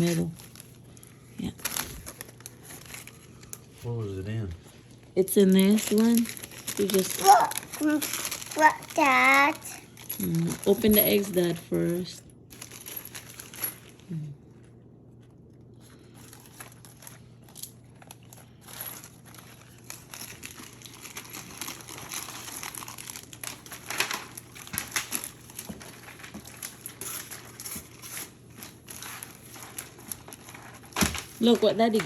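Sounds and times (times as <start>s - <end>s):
plastic wrapping crinkling and tearing: 0.0s - 32.0s.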